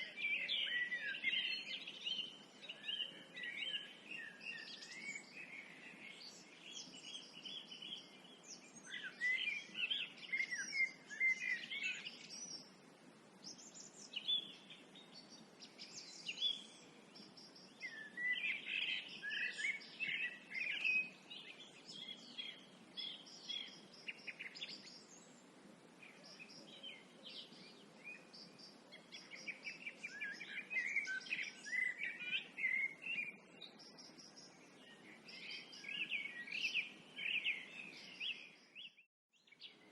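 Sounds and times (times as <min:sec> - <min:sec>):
songbirds warbling and chirping: 0:00.0 - 0:39.9.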